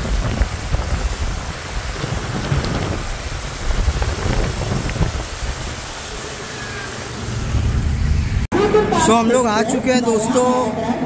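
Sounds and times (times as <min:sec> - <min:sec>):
rain: 0:00.0 - 0:08.5
vehicle driving on wet road: 0:00.0 - 0:08.5
wind on microphone: 0:00.0 - 0:08.5.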